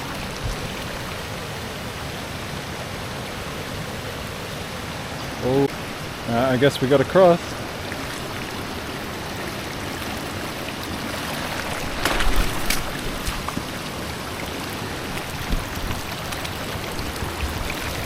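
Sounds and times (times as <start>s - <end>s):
floodwater rushing: 0.0s - 18.0s
person wading through water: 7.8s - 18.0s.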